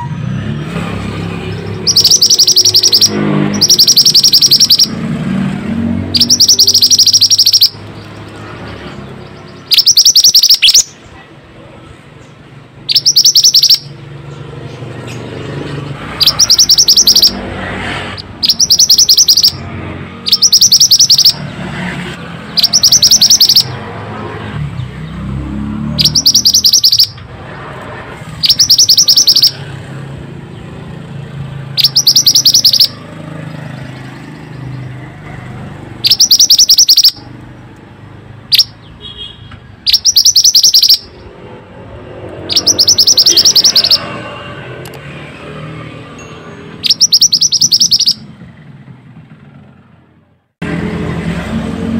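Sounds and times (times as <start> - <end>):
bird buzzy trill: 1.3 - 11.0, 12.8 - 21.6, 22.4 - 23.9, 25.9 - 27.2, 28.2 - 34.9, 35.7 - 37.4, 39.8 - 44.3, 46.4 - 48.4.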